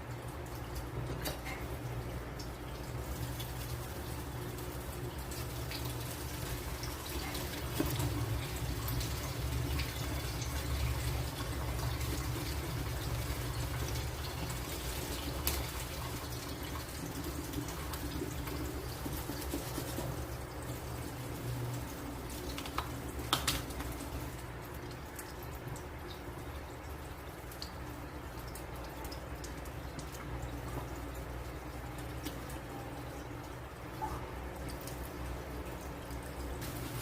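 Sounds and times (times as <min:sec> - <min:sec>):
water running and splashing: 0:00.0 - 0:37.0.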